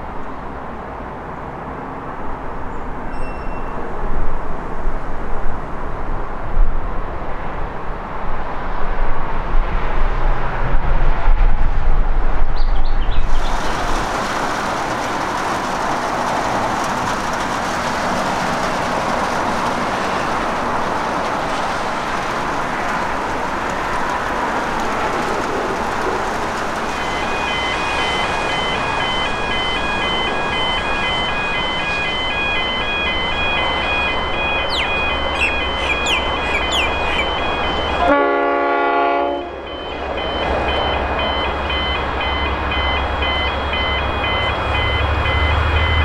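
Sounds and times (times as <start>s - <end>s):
diesel railcar rumbling: 0.0s - 46.0s
steady hiss of rain: 13.3s - 29.4s.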